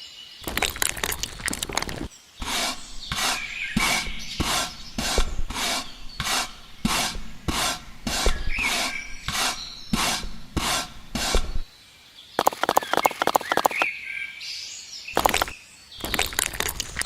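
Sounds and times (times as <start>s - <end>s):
rhythmic rasping strokes: 0.4s - 11.7s.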